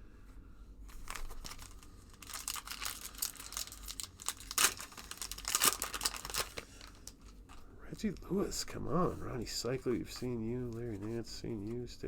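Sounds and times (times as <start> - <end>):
wrapper tearing and crinkling: 0.9 - 7.4.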